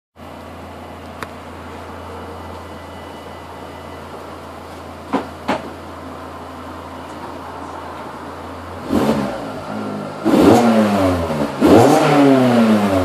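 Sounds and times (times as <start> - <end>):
car engine idling: 0.2 - 11.8.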